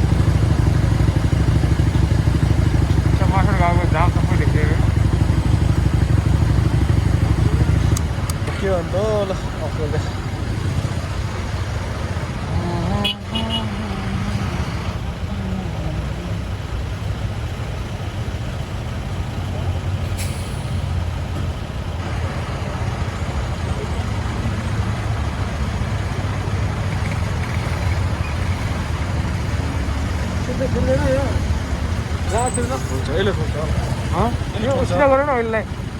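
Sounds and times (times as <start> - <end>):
motorcycle engine rumble: 0.0 - 35.9
passing traffic: 0.0 - 35.9
road noise: 0.0 - 35.9
brief hiss: 20.0 - 20.8.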